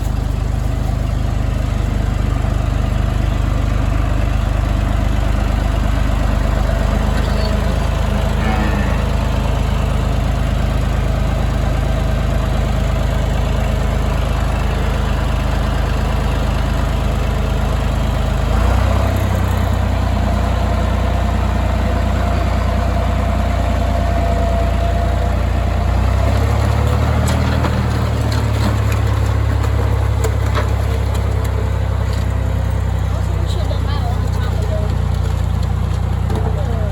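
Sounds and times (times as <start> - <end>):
vehicle engine idling: 0.0 - 36.9.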